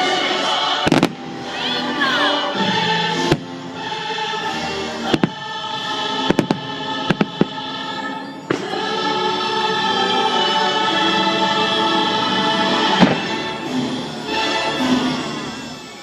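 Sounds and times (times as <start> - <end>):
choir singing: 0.0 - 16.0
firework bangs: 0.8 - 1.4, 3.2 - 3.6, 5.0 - 9.1, 12.8 - 13.6.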